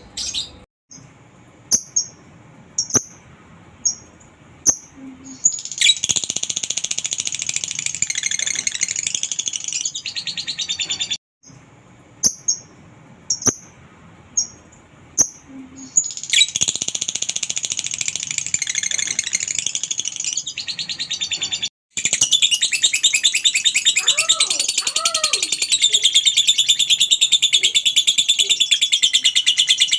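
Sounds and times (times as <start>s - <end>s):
bird chirps: 2.8s - 3.2s, 3.8s - 11.6s, 12.2s - 29.9s
lovebird chattering song: 3.8s - 11.2s, 15.2s - 29.9s.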